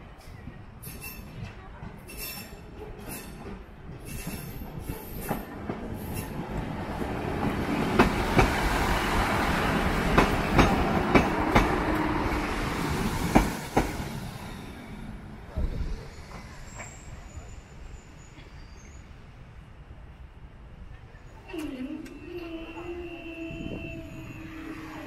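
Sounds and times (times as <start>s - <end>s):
train wheels clacking over joints: 10.1s - 11.8s.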